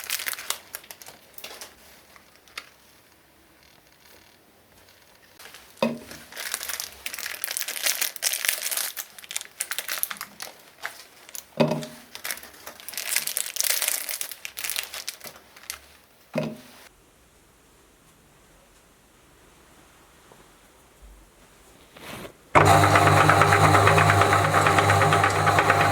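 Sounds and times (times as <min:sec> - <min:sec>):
plastic packaging crinkling: 0:00.0 - 0:16.1.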